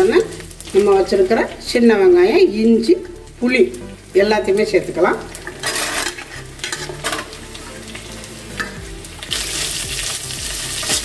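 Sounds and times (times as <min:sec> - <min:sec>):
food sizzling in oil: 0:00.0 - 0:11.0
spatula scraping pan: 0:05.4 - 0:07.4.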